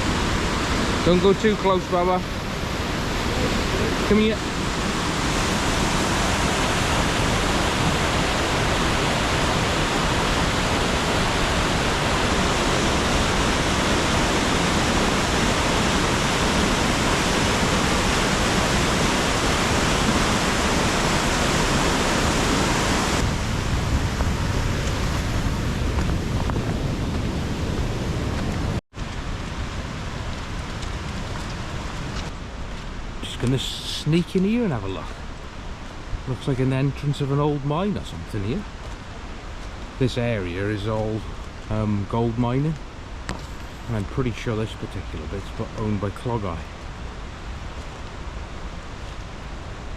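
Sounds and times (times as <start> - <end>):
waterfall rushing: 0.0 - 26.5.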